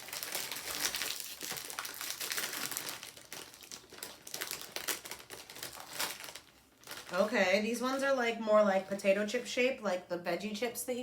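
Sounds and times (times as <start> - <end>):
plastic snack packet crinkling: 0.0 - 8.1.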